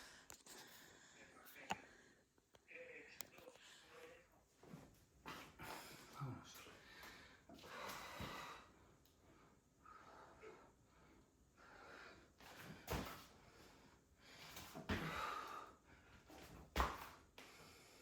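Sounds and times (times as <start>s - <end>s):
person breathing hard in puffs: 5.4s - 16.5s.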